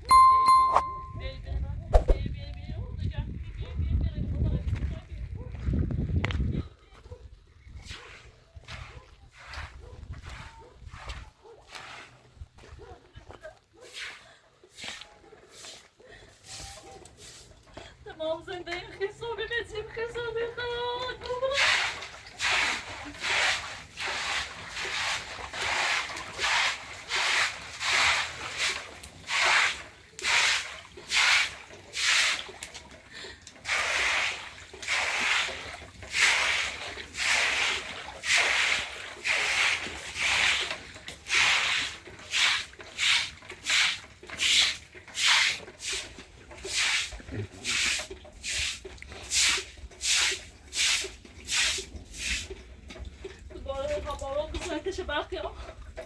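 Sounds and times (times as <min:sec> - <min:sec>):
rough scraping strokes: 0:07.8 - 0:12.4.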